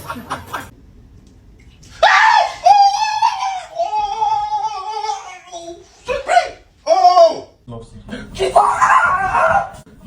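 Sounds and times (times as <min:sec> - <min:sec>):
person screaming in fright: 0:02.0 - 0:05.5.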